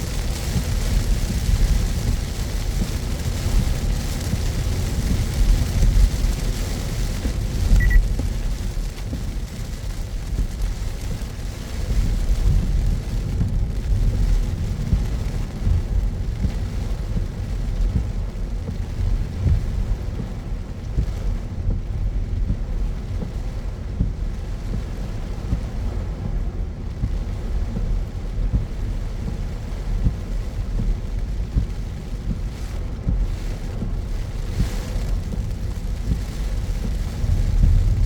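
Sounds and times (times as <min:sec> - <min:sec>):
tyres hissing on wet pavement: 0:00.0 - 0:15.6, 0:30.5 - 0:38.0
car road and engine rumble: 0:00.0 - 0:38.0.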